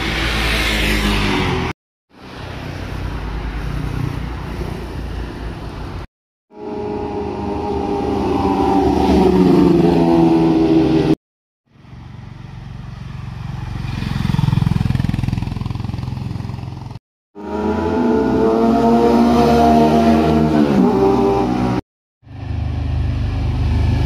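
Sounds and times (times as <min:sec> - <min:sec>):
motorcycles passing by: 0:06.6 - 0:11.2, 0:11.8 - 0:21.8.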